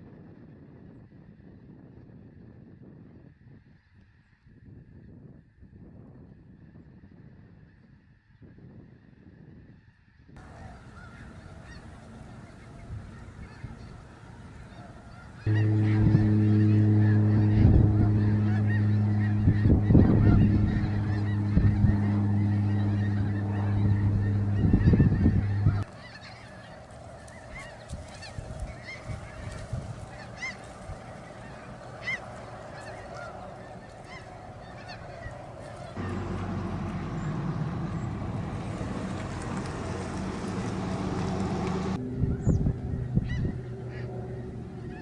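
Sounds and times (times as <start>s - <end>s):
geese honking: 10.4s - 45.0s
loud steady low hum: 15.5s - 25.9s, 36.0s - 45.0s.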